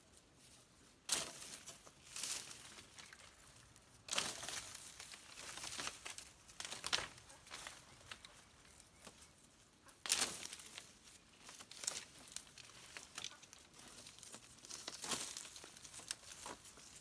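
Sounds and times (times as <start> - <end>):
dry material crumpling: 10.0 - 17.0.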